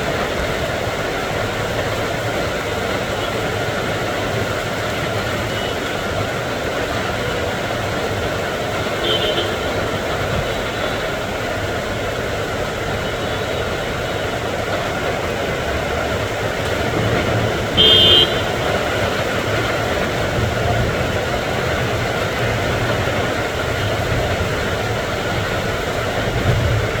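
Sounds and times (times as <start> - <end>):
steady rain falling: 0.0 - 27.0
short horn blast: 17.8 - 18.7.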